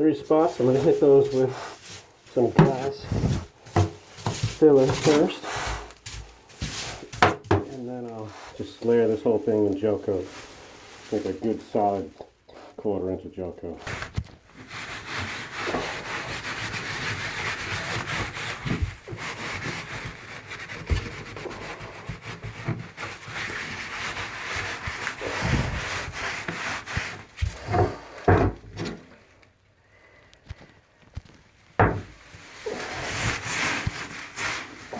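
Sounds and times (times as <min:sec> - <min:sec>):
tool scraping fibreglass tub: 0:00.0 - 0:09.6, 0:13.9 - 0:29.2.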